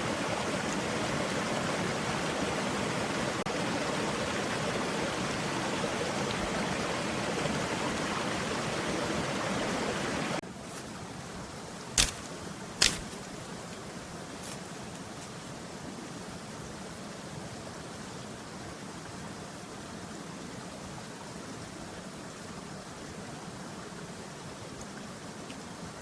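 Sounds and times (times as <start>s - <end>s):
forest stream rushing: 0.0s - 26.0s
steady hiss: 10.4s - 23.3s
sharp knocks: 12.0s - 13.2s.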